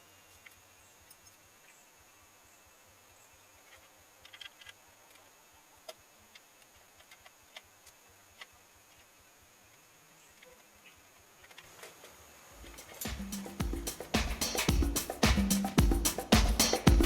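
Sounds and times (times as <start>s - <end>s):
faint clicks and ticks: 3.6s - 5.3s, 5.9s - 9.1s.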